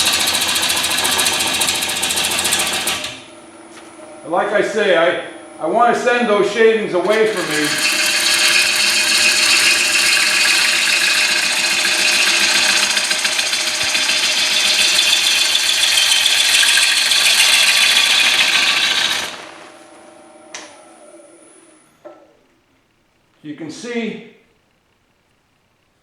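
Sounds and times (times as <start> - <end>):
lathe tool tearing wood shavings: 0.0 - 3.3, 6.9 - 19.9
lathe spinning quietly: 0.0 - 23.8.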